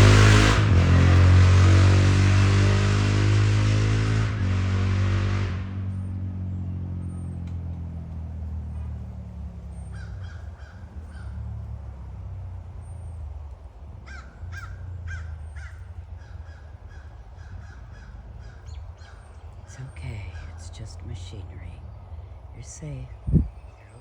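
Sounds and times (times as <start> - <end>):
low machinery engine hum: 0.0 - 4.4, 5.5 - 24.0
harsh bird calls: 9.6 - 11.5, 14.0 - 24.0.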